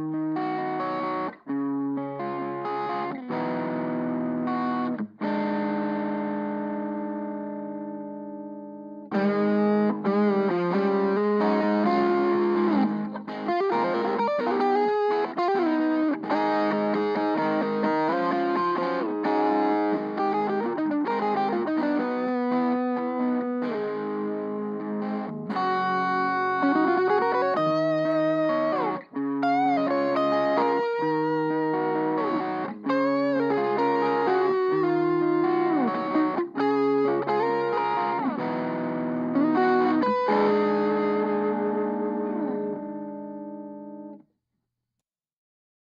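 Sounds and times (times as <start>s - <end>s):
distorted electric guitar: 0.0s - 44.2s.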